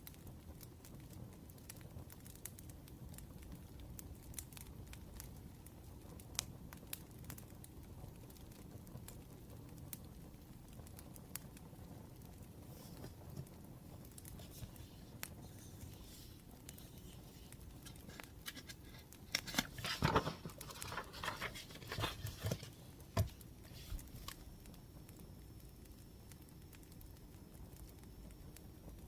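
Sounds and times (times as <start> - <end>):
wood fire crackling: 0.0 - 29.0
paper rustling: 14.1 - 24.4.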